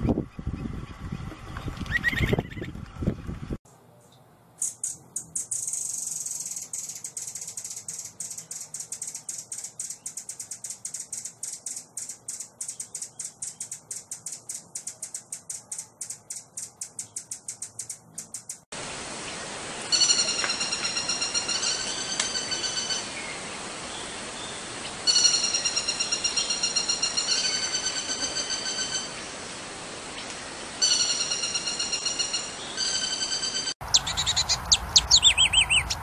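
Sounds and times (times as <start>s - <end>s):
bird whistled song: 1.9s - 2.7s, 4.6s - 18.6s, 24.4s - 29.2s, 30.8s - 36.0s
bird buzzy high trill: 4.6s - 18.6s, 19.9s - 23.4s, 25.0s - 29.5s, 30.8s - 36.0s
bird dry high clicking notes: 4.6s - 18.7s, 19.9s - 23.1s, 30.2s - 33.8s.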